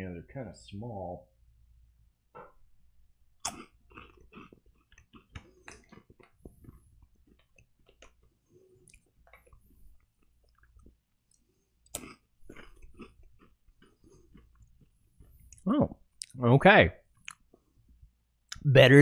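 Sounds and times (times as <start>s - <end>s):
chewing rice crackers: 3.4s - 16.4s.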